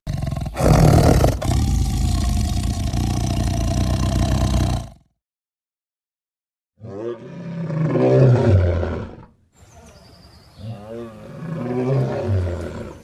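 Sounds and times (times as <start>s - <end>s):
lion roaring: 0.1s - 5.1s, 6.8s - 9.3s, 10.6s - 13.0s.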